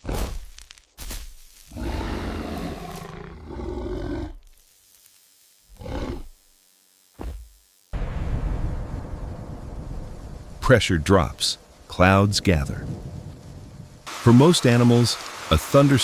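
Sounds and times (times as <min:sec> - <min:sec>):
animal-like roar: 0:01.7 - 0:04.4, 0:05.7 - 0:06.3
steady rushing noise: 0:08.0 - 0:16.0.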